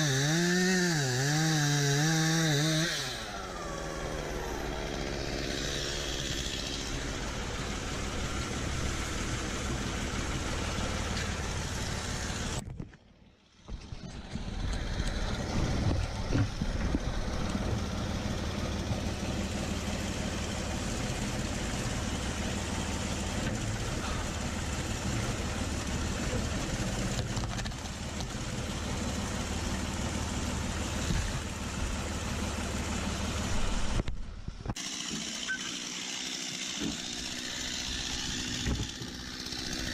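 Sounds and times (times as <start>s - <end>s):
tractor engine running: 1.2s - 39.9s.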